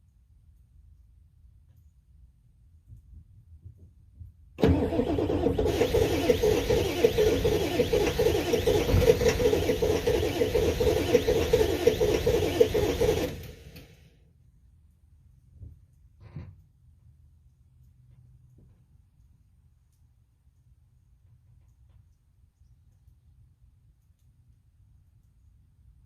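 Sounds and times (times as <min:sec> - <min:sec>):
diesel engine cranking: 0:04.6 - 0:14.0
diesel engine running: 0:04.6 - 0:14.0.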